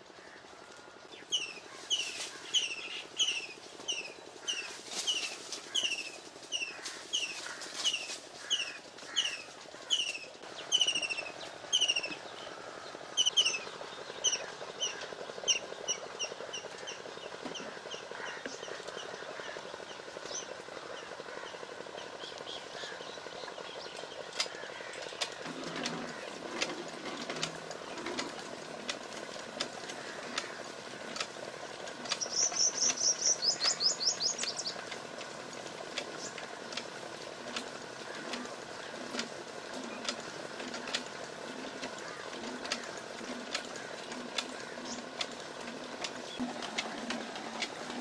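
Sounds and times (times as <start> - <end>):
bird chirping: 9.2 - 12.5, 13.2 - 17.0, 32.2 - 34.8.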